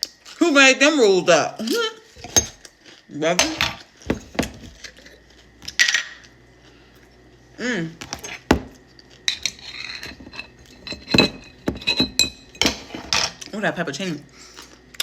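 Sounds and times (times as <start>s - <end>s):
crackling food: 0.0s - 11.7s
person humming: 7.6s - 8.0s.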